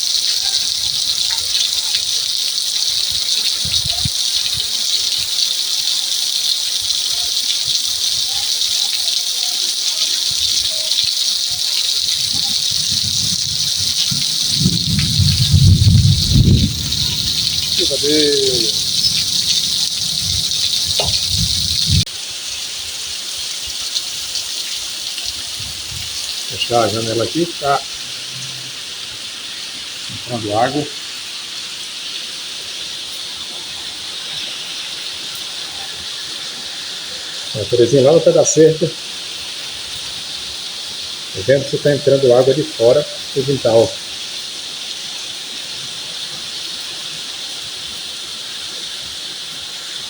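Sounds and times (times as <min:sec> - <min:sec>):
heavy rain pouring: 0:00.0 - 0:50.0.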